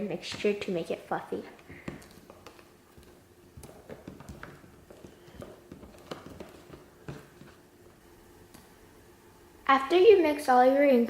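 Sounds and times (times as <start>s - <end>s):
utensil stirring foamy mixture: 0.0s - 7.9s.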